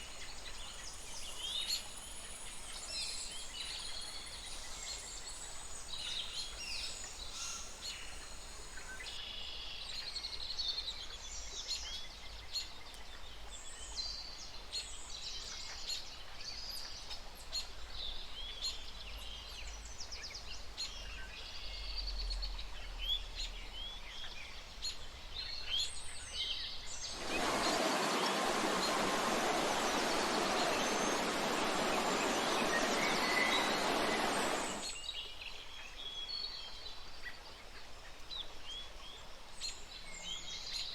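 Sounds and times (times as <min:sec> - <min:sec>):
loud rushing hiss: 0:27.0 - 0:34.9
small birds chirping: 0:27.0 - 0:34.9.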